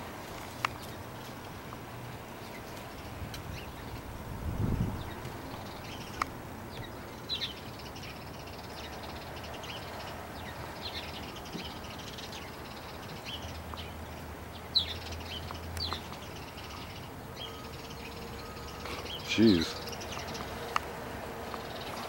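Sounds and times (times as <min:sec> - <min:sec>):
crows cawing: 0:17.3 - 0:20.8.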